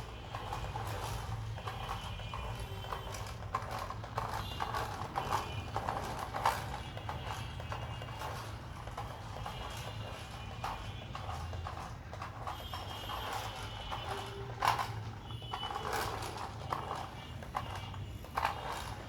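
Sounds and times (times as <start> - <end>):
toy car plastic clicks: 0.0 - 19.0.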